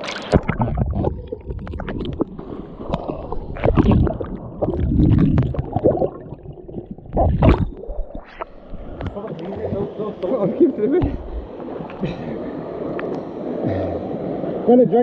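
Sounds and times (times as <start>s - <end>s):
stream water splashing: 0.0s - 14.4s.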